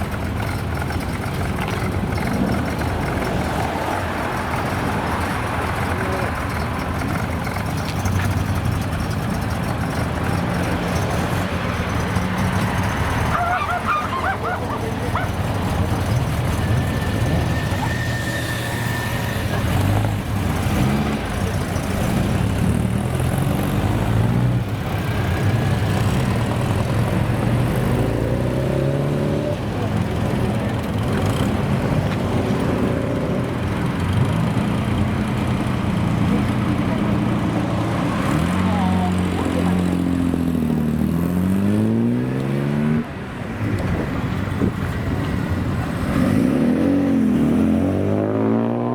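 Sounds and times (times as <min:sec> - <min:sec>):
car engine idling: 0:00.0 - 0:28.6, 0:29.6 - 0:41.0
wavering honking calls: 0:13.1 - 0:20.0.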